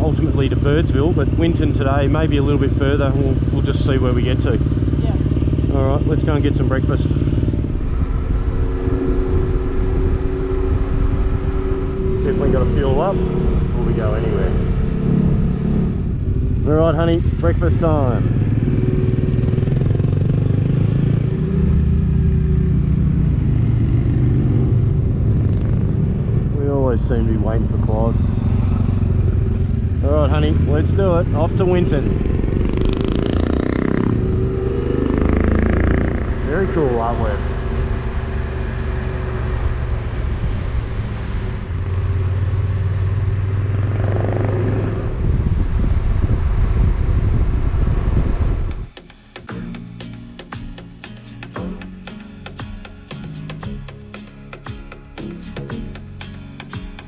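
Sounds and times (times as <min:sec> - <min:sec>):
motorcycle engine running: 0:00.0 - 0:57.0
road noise: 0:00.0 - 0:57.0
wind noise: 0:05.1 - 0:20.3, 0:43.6 - 0:49.0.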